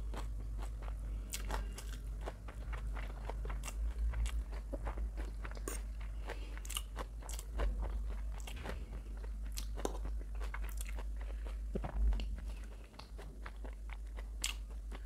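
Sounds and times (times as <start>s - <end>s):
chewing noodles: 0.0s - 15.0s.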